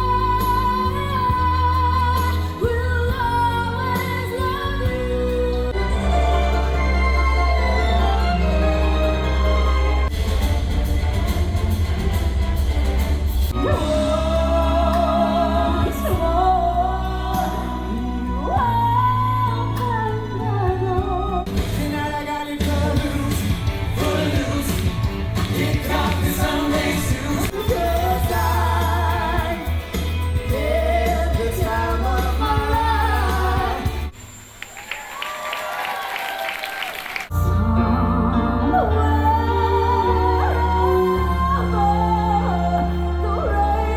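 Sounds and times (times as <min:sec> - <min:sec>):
band with heavy bass: 0:08.7 - 0:34.1
person singing with vibrato: 0:13.5 - 0:34.1, 0:37.3 - 0:43.9.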